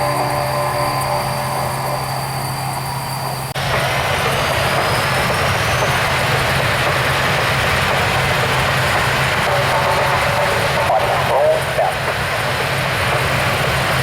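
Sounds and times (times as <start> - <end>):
rushing noise with rising whine: 0.0 - 5.8
aircraft engine humming: 0.0 - 14.0.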